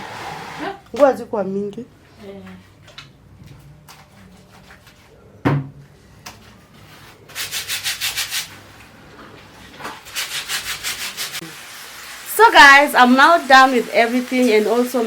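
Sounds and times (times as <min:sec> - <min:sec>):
fast scrubbing strokes: 0:00.0 - 0:00.8.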